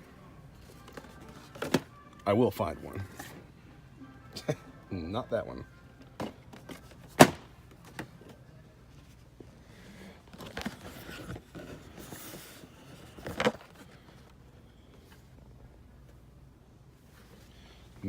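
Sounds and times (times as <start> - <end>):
boxes rustling and shuffling: 0.5 - 3.6, 6.0 - 16.2, 17.0 - 18.0.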